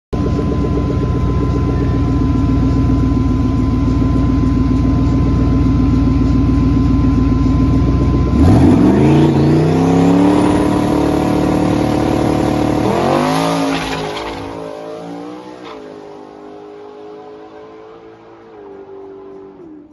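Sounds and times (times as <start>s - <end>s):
car engine revving: 8.0s - 19.9s.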